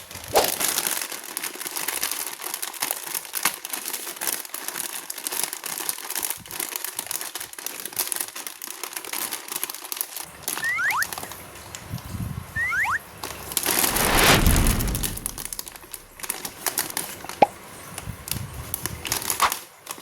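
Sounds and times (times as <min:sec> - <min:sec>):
plastic packaging crinkling: 0:00.2 - 0:10.6, 0:15.5 - 0:17.5, 0:18.8 - 0:20.0
plastic tearing: 0:00.3 - 0:10.3, 0:19.0 - 0:20.0
brief squeak: 0:12.6 - 0:13.0.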